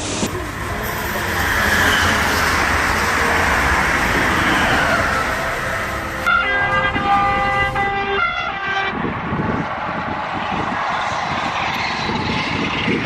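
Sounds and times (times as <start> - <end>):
high-speed train rushing: 0.0 - 13.0
train horn: 0.6 - 9.1.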